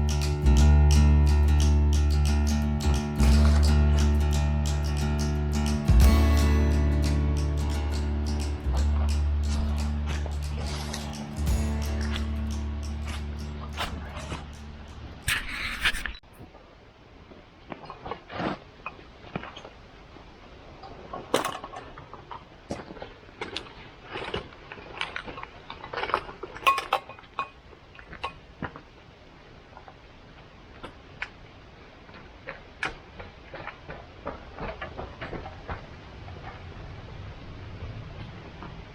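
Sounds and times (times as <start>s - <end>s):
metal cookware clinking: 26.7s - 27.2s.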